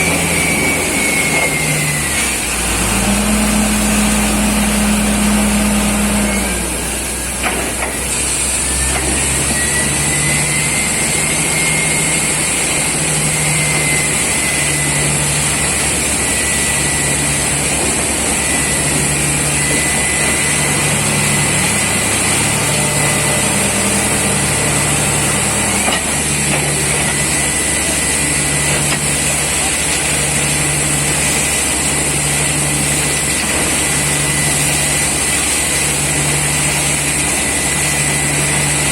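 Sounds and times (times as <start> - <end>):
thin whistle: 0.0 - 2.3, 8.6 - 29.5, 33.8 - 35.2, 37.4 - 38.9
drilling rig engine drone: 0.0 - 38.9.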